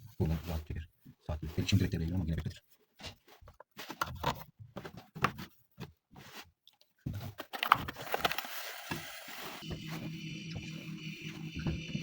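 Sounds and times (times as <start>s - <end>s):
rustling and scraping of parts: 2.7s - 12.0s
refrigerator motor hum: 9.6s - 12.0s.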